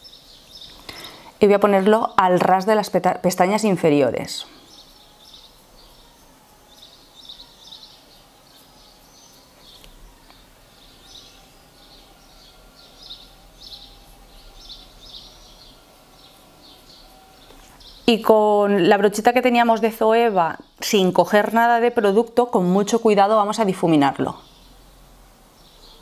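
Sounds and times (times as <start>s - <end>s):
faint bird chirps: 4.4s - 18.9s.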